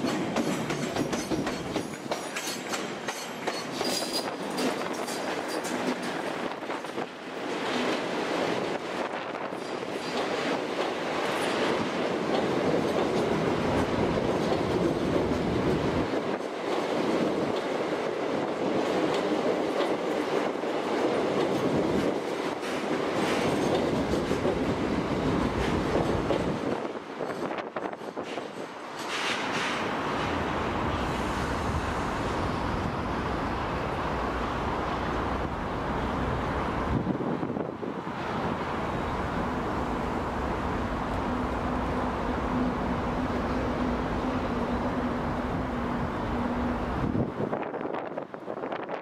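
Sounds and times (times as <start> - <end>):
wheels clicking over rail joints: 0.0 - 8.1
train running gear rumble: 0.0 - 49.0
wind buffeting microphone: 8.2 - 28.7, 35.0 - 39.6, 44.5 - 49.0.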